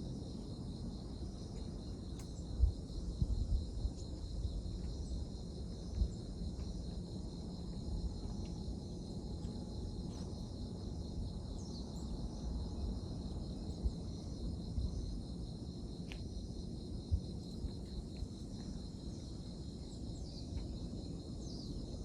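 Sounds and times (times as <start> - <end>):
crickets chirping: 0.0 - 22.0
faint ticks: 2.1 - 2.4.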